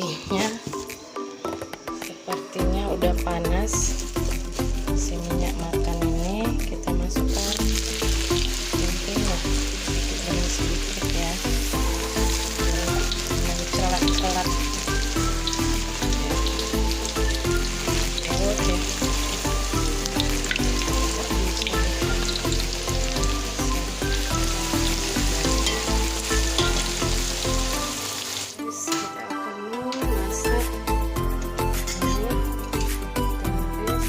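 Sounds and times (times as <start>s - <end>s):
background music with beat: 0.0s - 34.0s
food sizzling in oil: 2.9s - 28.6s.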